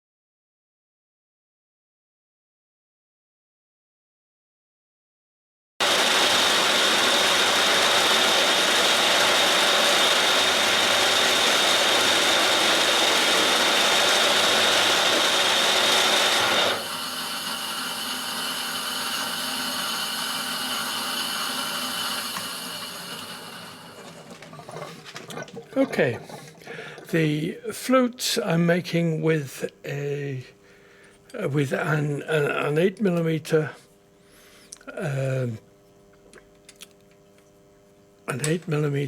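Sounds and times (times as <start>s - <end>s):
end mill cutting steel: 5.8s - 24.2s.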